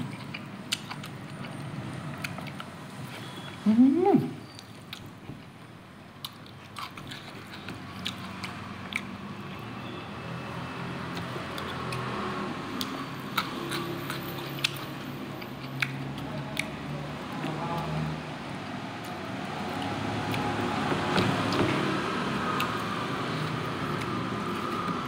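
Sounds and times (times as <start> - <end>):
wet chewing with mouth clicks: 0.0 - 3.6, 4.4 - 5.6, 6.2 - 9.7, 11.0 - 17.9, 22.4 - 25.0.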